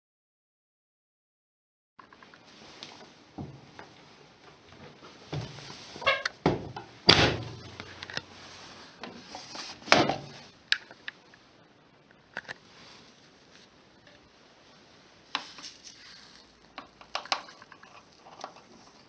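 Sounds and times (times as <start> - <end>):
washing machine door thuds: 6.4 - 7.7.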